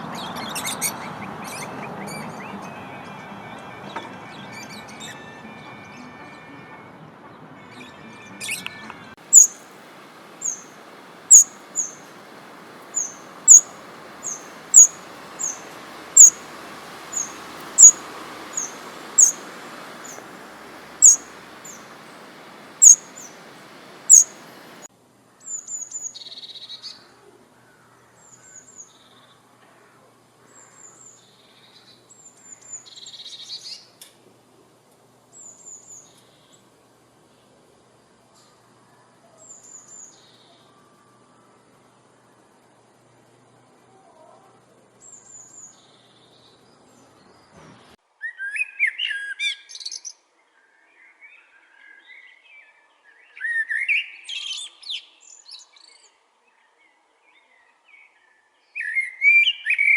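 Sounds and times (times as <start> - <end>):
small birds chirping: 0.0 - 3.3, 7.7 - 29.5, 30.4 - 34.1, 43.9 - 50.2
steady background hiss: 9.1 - 48.3.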